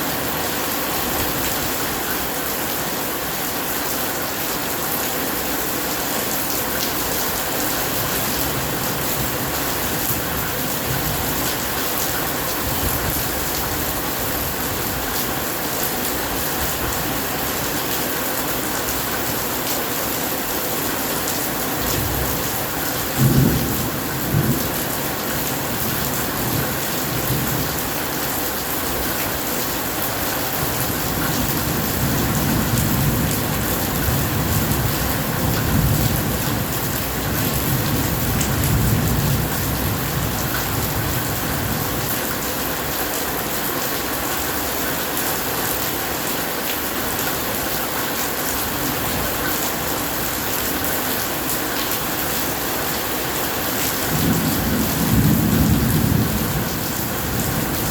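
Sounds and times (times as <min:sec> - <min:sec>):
heavy rain splashing: 0:00.0 - 0:57.9
thunder rumbling: 0:54.1 - 0:57.9.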